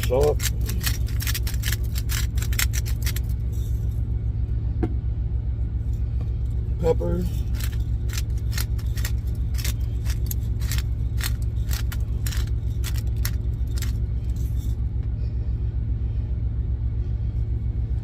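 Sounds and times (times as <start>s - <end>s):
pepper container rattling: 0.0s - 3.8s, 7.2s - 14.7s
truck engine idling: 0.0s - 18.0s.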